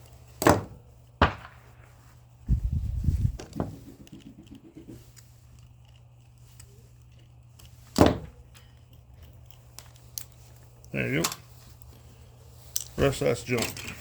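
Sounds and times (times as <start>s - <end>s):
steady low hum: 0.0s - 14.0s
clatter of electronic parts: 3.4s - 11.9s, 12.6s - 14.0s.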